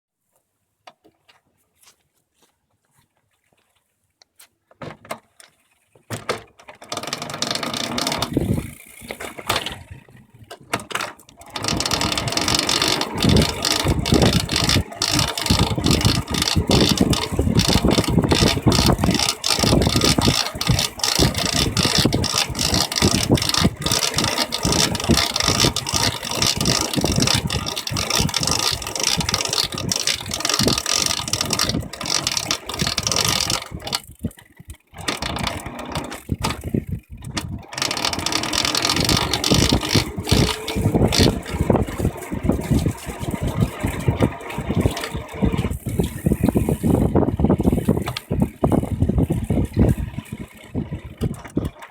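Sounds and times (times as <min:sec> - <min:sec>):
electric bike motor drive noise: 0:05.4 - 0:51.9
irregular clicking: 0:10.5 - 0:51.9.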